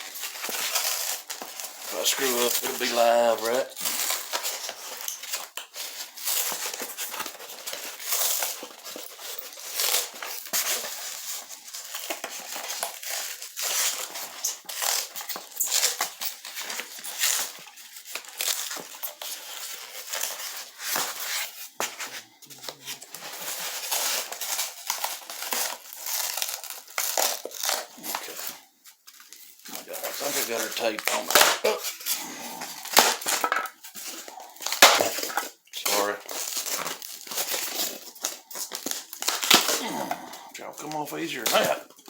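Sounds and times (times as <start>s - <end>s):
styrofoam crinkling and tearing: 0.0s - 42.0s
sharp crackles: 0.6s - 4.4s, 34.1s - 42.0s
tape peeling: 18.1s - 28.4s, 29.6s - 33.5s.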